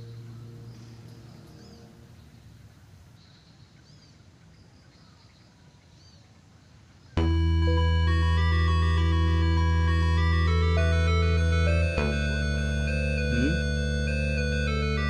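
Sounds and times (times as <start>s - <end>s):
bird chirping: 0.0s - 7.8s
low hum: 7.2s - 15.0s.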